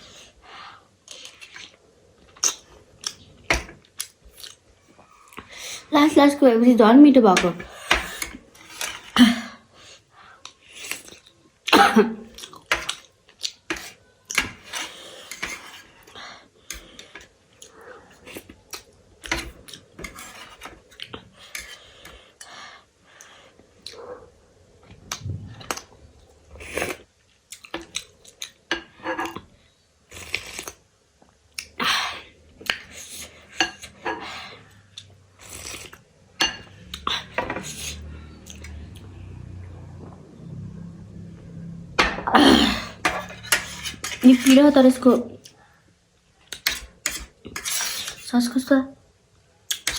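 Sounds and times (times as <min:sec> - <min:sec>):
chewing and mouth smacks: 0:03.9 - 0:04.6, 0:24.9 - 0:26.0
cutlery clinking on a plate: 0:43.0 - 0:44.6.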